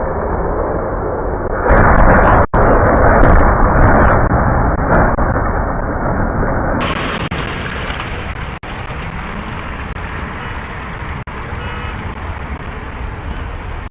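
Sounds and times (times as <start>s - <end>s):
road traffic noise: 6.8s - 13.9s.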